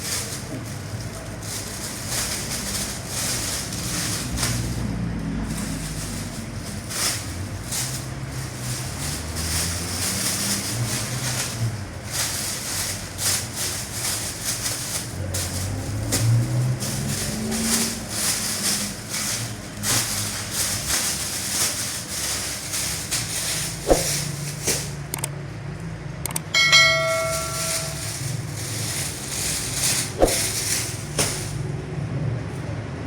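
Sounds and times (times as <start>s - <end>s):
scraping strokes: 0.0s - 25.0s, 26.7s - 31.6s
metallic bell-like ring: 26.5s - 28.1s.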